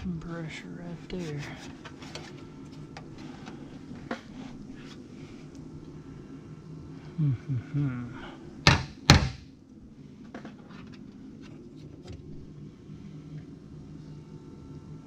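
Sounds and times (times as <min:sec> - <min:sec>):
steady low hum: 0:00.0 - 0:15.0
sharp knocks: 0:08.7 - 0:09.4.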